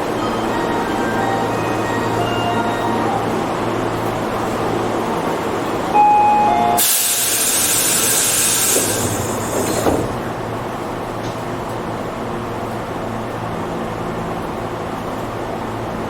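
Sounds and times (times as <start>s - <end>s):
train interior noise: 0.0s - 16.0s
compressed air hiss: 6.8s - 9.8s.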